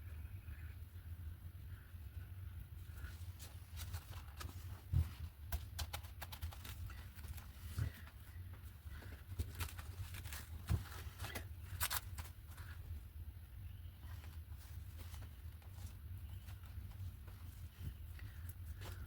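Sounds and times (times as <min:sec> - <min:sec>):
paper crinkling: 0:03.0 - 0:12.9.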